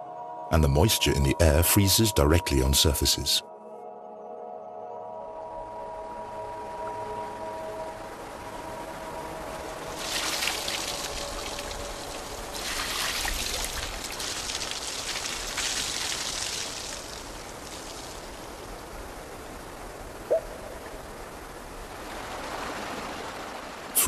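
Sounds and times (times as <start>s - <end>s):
water trickling and splashing: 9.4s - 24.0s.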